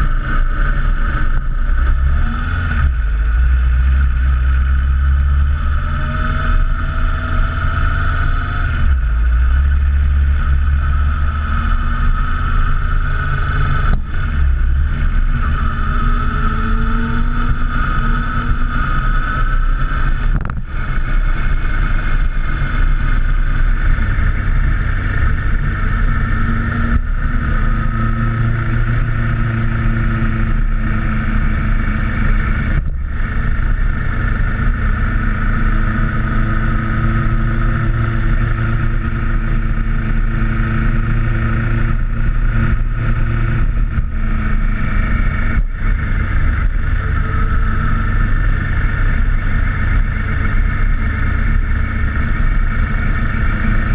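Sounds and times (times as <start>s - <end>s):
motorcycle engine cruising: 0.0s - 53.9s
road and wind noise: 0.0s - 53.9s.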